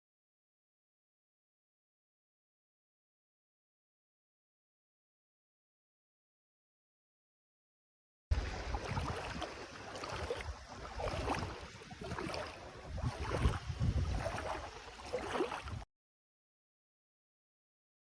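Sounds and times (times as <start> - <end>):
rushing water: 8.3 - 15.8
wind on microphone: 8.3 - 15.8.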